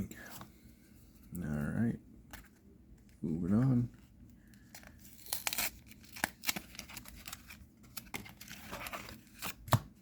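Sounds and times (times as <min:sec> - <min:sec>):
foil wrapper crinkling and tearing: 0:04.9 - 0:09.5.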